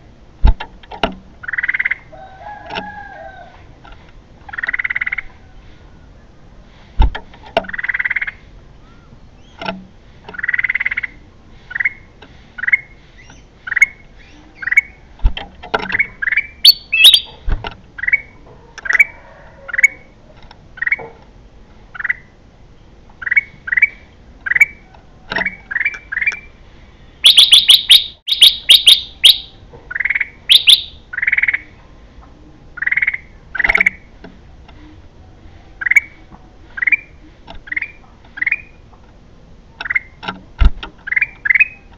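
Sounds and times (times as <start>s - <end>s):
bulbul chirping: 15.9s - 17.3s, 27.2s - 31.7s, 41.0s - 41.9s
bird sharp rapid notes: 16.0s - 17.3s, 27.2s - 31.6s.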